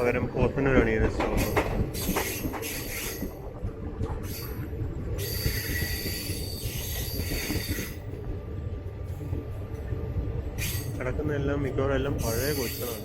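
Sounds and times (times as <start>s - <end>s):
train coaches rumbling on rails: 0.0s - 13.0s
wheel and brake squeal: 5.2s - 8.0s, 10.6s - 11.0s, 12.2s - 13.0s.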